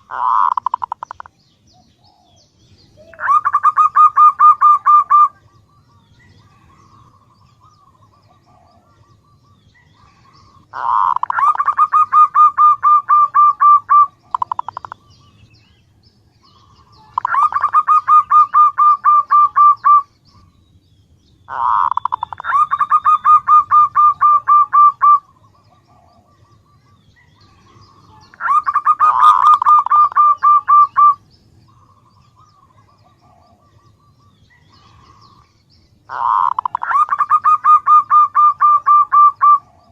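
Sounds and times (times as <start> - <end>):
dove calling rapid short notes: 0.0 - 1.3, 3.0 - 5.4, 10.2 - 15.0, 17.0 - 20.1, 21.5 - 25.5, 27.5 - 32.0, 36.1 - 39.9.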